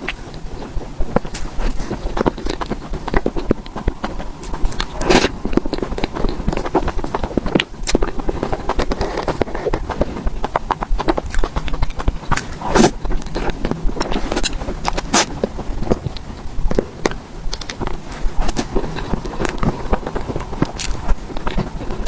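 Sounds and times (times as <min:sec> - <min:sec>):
chewing and mouth smacking: 0:00.0 - 0:22.0
slurping sounds: 0:01.1 - 0:16.8.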